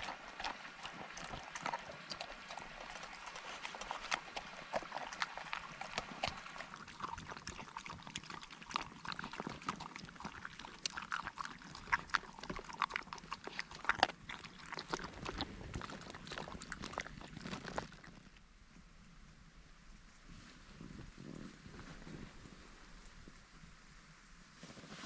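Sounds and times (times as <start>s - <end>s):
dog eating from a bowl: 0.0s - 18.4s.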